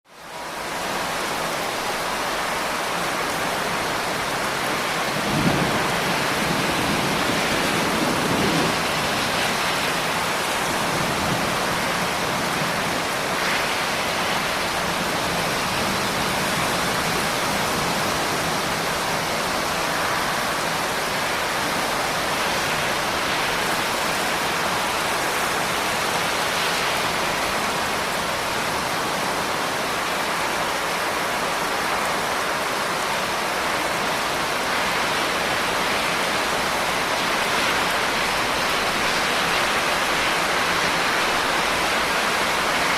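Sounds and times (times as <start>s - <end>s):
rain falling: 0.1s - 42.9s.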